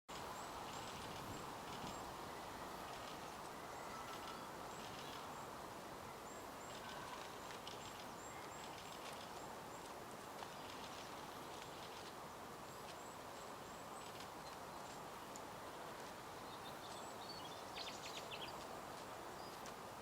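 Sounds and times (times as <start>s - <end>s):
background hiss: 0.1s - 20.0s
birds chirping: 16.3s - 19.7s.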